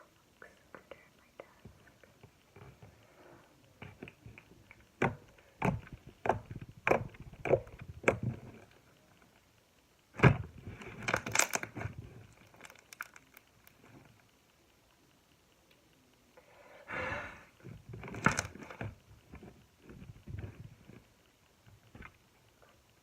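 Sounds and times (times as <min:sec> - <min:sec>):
crackling pops: 0:03.6 - 0:16.3
scattered clicks: 0:10.8 - 0:16.3.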